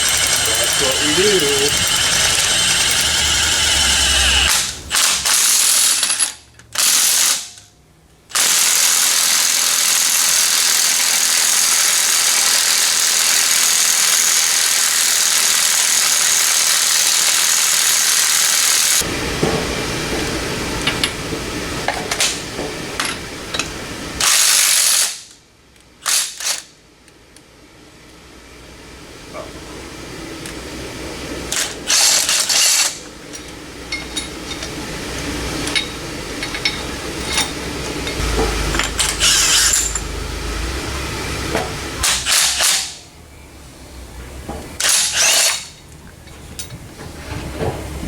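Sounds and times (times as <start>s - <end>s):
power tool running: 0.0s - 6.1s, 8.3s - 19.1s, 38.0s - 43.0s.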